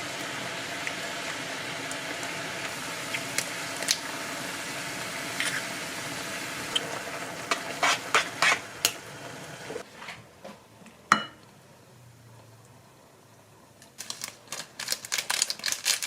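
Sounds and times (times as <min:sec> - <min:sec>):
cooking sizzle: 0:00.0 - 0:09.8.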